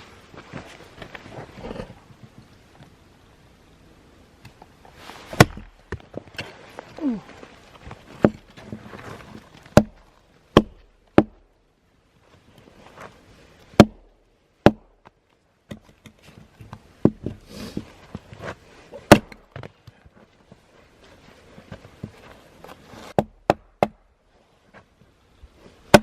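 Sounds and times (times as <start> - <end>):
axe striking log: 5.3 - 6.5, 8.2 - 8.5, 9.7 - 11.5, 13.7 - 15.1, 19.0 - 19.7, 23.1 - 24.1.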